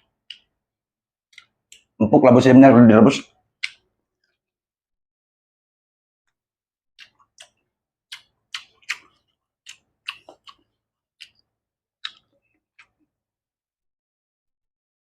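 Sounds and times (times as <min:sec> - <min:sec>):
wet chewing clicks and smacks: 0:00.0 - 0:00.6, 0:01.3 - 0:02.0, 0:03.5 - 0:04.4, 0:07.0 - 0:13.2.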